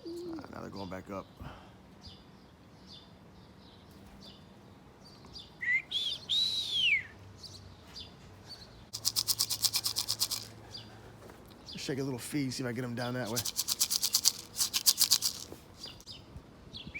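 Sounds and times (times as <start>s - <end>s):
rising and falling call whistle: 5.6s - 7.2s
feed rattling in a can: 9.0s - 10.6s, 13.2s - 16.0s.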